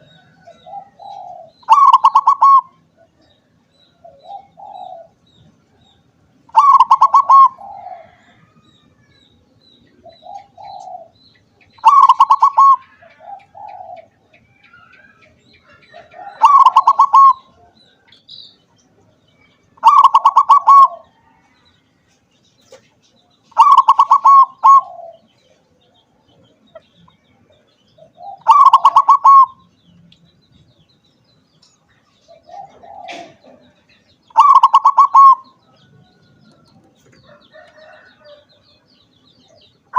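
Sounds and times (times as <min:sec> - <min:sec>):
dove cooing: 0:00.0 - 0:05.8, 0:06.5 - 0:08.7, 0:09.9 - 0:18.0, 0:19.8 - 0:21.5, 0:23.5 - 0:25.6, 0:28.0 - 0:29.7, 0:32.2 - 0:36.6.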